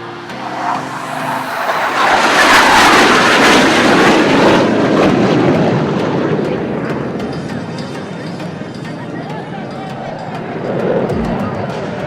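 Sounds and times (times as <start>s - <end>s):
jet aircraft flying past: 0.0s - 6.2s.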